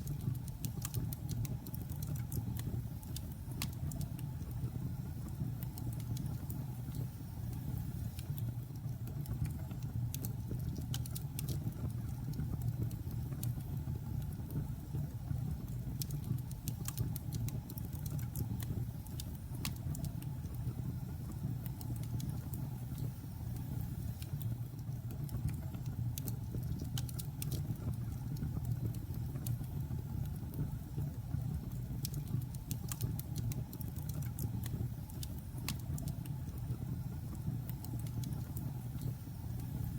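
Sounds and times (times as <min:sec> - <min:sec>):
logs crackling and popping: 0:24.2 - 0:30.5.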